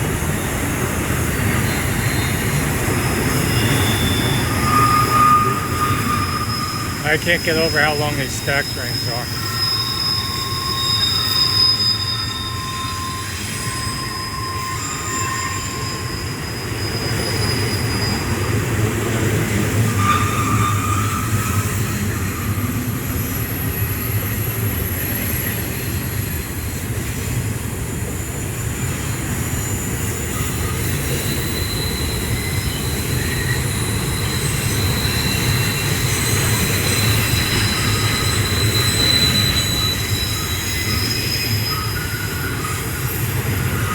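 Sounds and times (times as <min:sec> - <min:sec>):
train wheels rumbling on rails: 0:00.0 - 0:43.9
high-pitched wheel squeal: 0:01.5 - 0:23.4, 0:29.5 - 0:43.9.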